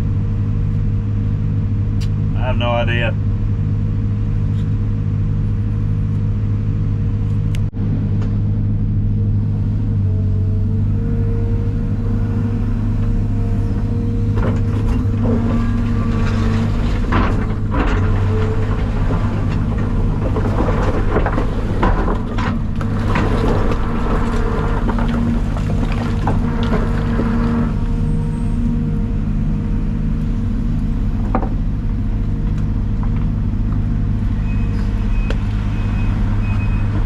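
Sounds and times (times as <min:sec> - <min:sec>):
diesel engine humming: 0:00.0 - 0:37.0
rattles and knocks: 0:13.2 - 0:28.1.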